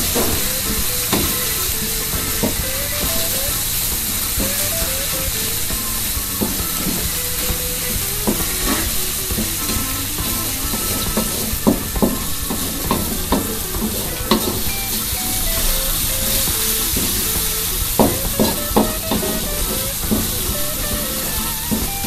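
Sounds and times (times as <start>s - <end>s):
spice paste sizzling in wok: 0.0s - 22.0s.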